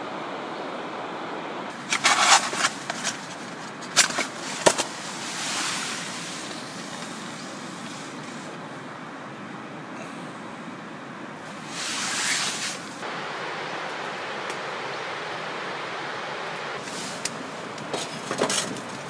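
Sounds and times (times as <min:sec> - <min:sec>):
rushing background noise: 0:00.0 - 0:19.0
camp gear clattering: 0:01.7 - 0:08.1, 0:16.8 - 0:19.0.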